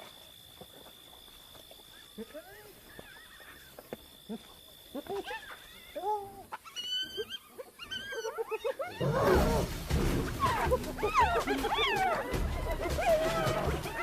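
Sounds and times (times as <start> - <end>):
hyenas squealing and giggling: 2.0 - 3.8, 4.9 - 14.0
low rumble: 9.3 - 13.9.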